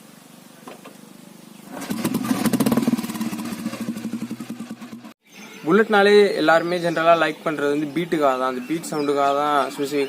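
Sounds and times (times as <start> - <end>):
single-cylinder motorcycle engine: 1.7 - 5.2.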